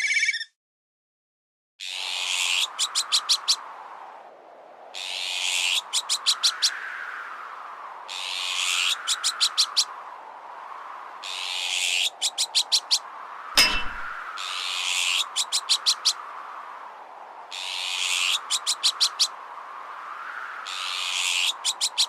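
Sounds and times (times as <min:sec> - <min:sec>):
magpie alarm calls: 0:00.0 - 0:00.5
strong wind: 0:02.0 - 0:22.0.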